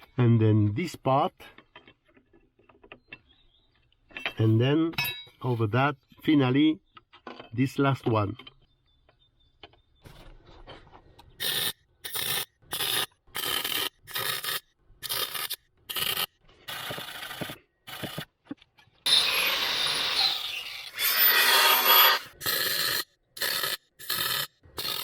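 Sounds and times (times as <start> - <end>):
welding gun sizzling: 11.4 - 18.2, 19.1 - 25.0.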